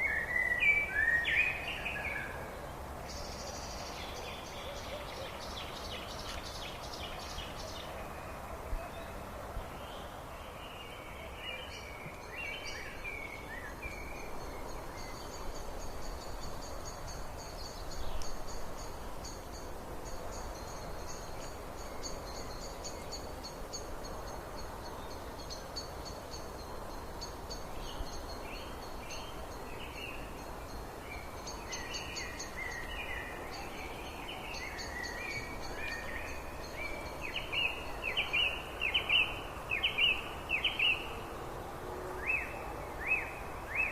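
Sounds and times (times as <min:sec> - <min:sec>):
birds chirping: 0:00.0 - 0:41.2
background hiss: 0:00.0 - 0:43.9.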